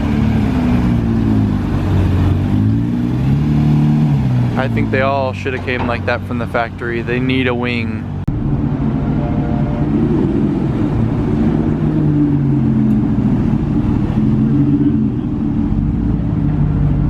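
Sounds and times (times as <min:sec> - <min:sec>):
car engine running at low revs: 0:00.0 - 0:17.0.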